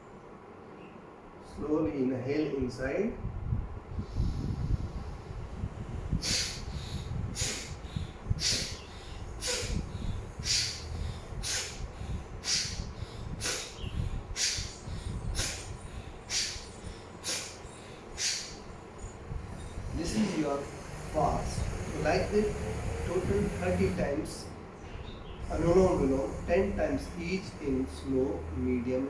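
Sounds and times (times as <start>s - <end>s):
fast nostril breathing: 3.9s - 24.2s.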